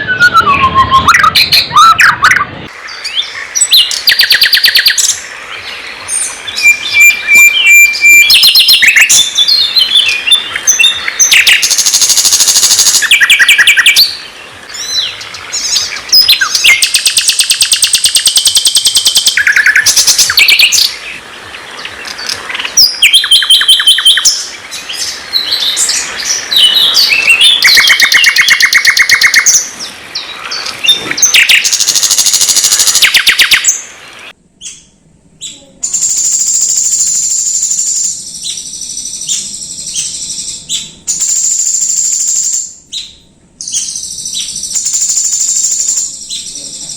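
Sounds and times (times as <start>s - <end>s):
songbird trills and whistles: 0.0s - 5.2s, 6.1s - 21.0s, 22.6s - 33.8s.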